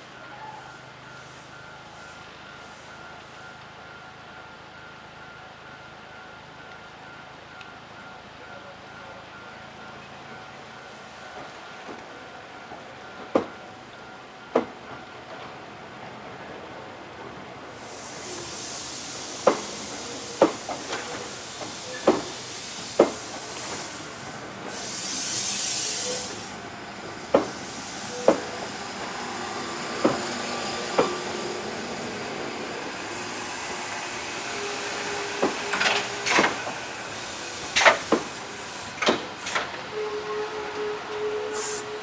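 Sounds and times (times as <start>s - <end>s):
train wheels clicking over rail joints: 12.7s - 16.2s, 18.1s - 39.9s
air hiss: 17.7s - 39.8s, 41.4s - 42.0s.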